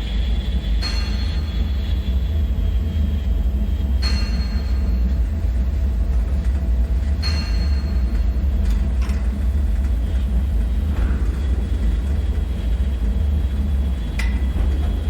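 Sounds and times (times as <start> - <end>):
deep rumbling drone: 0.0 - 15.0.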